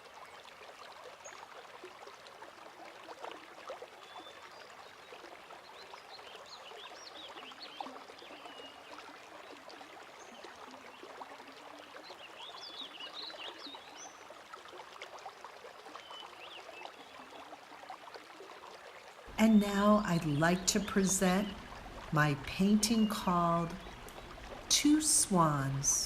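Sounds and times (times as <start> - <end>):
water gently lapping: 0.0 - 26.0
small birds chirping: 19.5 - 26.0.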